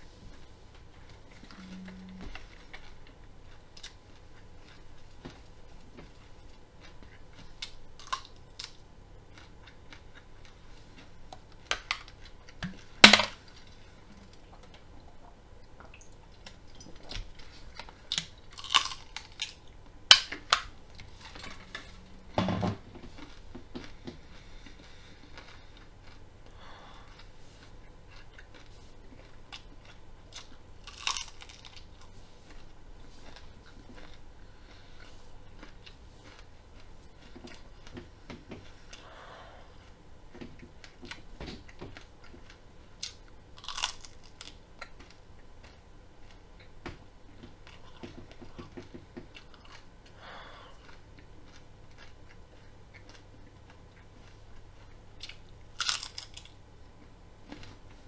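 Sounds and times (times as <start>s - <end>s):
quiet chewing: 0.0s - 58.0s
loud crunches of biting broccoli: 17.5s - 19.6s, 24.6s - 26.2s, 27.0s - 32.0s, 43.0s - 45.2s, 55.2s - 56.6s.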